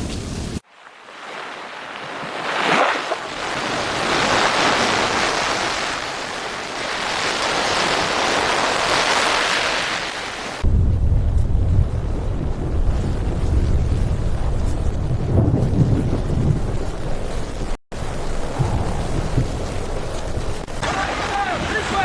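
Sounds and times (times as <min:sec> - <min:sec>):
floodwater rushing: 0:00.7 - 0:10.6, 0:17.9 - 0:22.0
deep heavy rumble: 0:10.6 - 0:20.8
wind buffeting microphone: 0:10.6 - 0:22.0.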